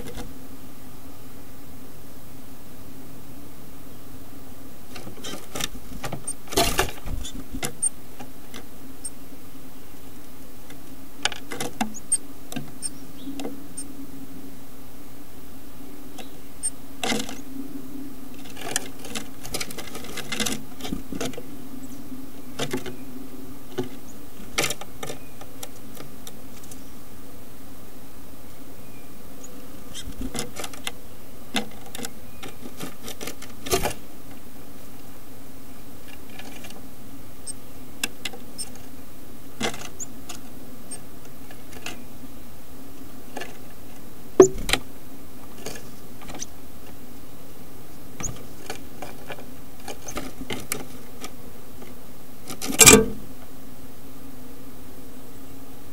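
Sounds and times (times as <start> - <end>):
low electrical hum: 0.0 - 55.9
bird scratching inside wooden box: 18.4 - 21.4, 31.6 - 34.0, 48.2 - 51.4.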